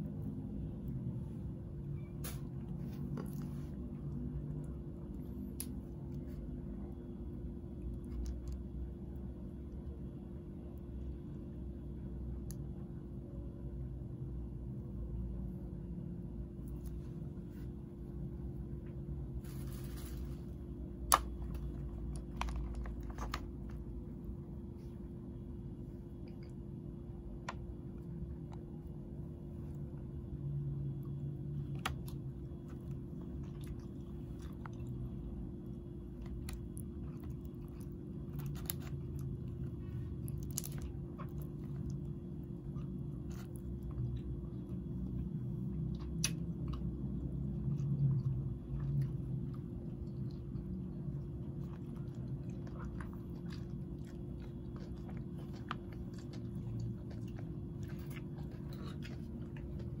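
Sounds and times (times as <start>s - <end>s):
steady low hum: 0.0s - 60.0s
chewing and biting food: 2.0s - 6.5s, 18.3s - 60.0s.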